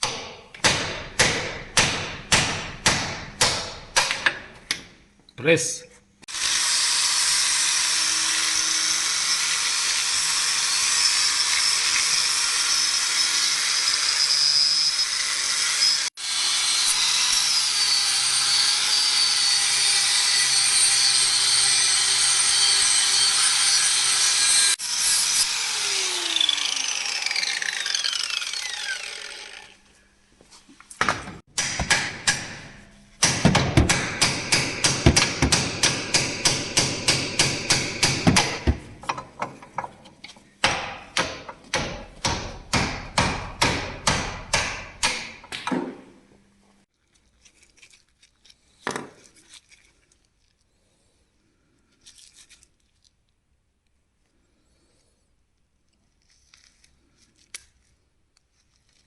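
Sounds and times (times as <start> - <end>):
electric power tool running: 6.3 - 14.2, 15.0 - 29.8.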